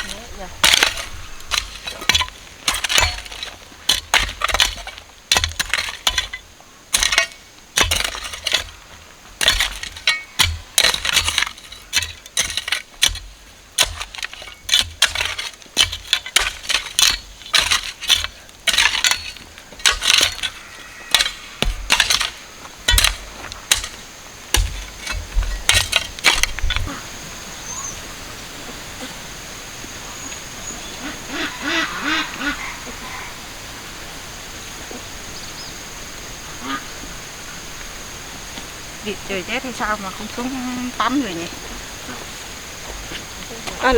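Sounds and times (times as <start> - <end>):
blade chopping sugar cane: 0.0 - 8.7, 9.4 - 20.5, 21.1 - 26.7.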